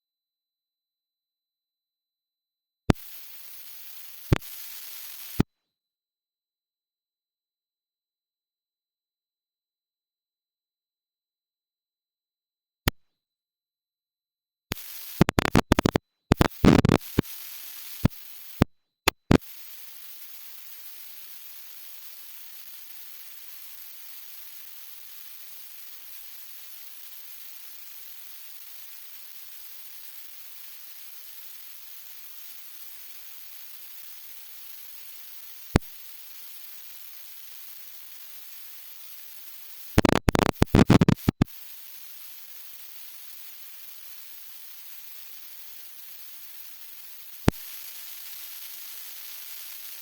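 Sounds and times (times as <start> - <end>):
crackling clicks: 2.9 - 5.4, 14.7 - 19.5, 34.7 - 50.0
recording hiss: 14.7 - 50.0
sharp click: 19.0 - 19.4.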